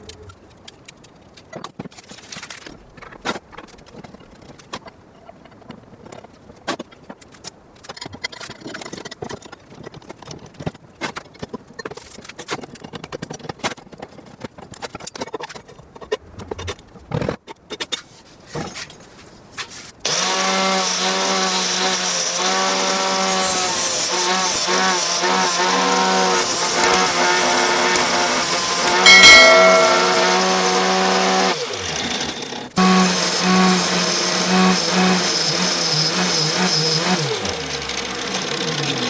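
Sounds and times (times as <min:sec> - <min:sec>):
disc sander whining: 0:20.1 - 0:31.8
tool handling clicks and knocks: 0:26.8 - 0:30.3.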